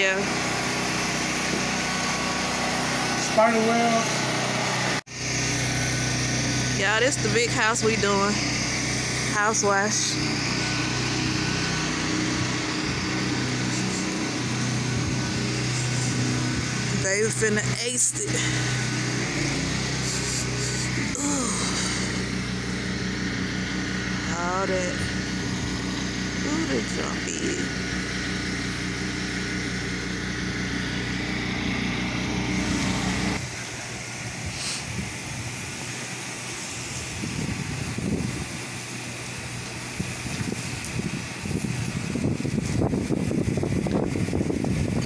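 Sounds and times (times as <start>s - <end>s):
small gas engine running: 0.0s - 45.0s
hiss of water spray: 18.3s - 22.4s, 33.5s - 45.0s.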